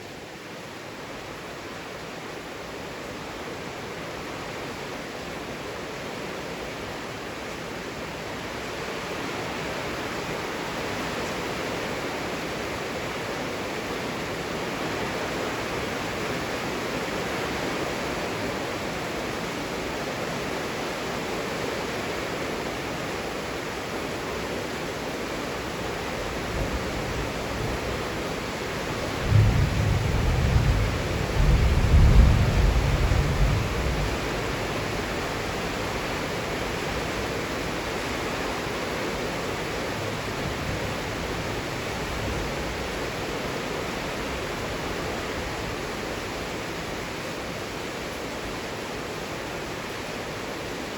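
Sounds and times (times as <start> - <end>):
heavy rain falling: 0.0 - 50.9
thunder rumbling: 28.7 - 36.1.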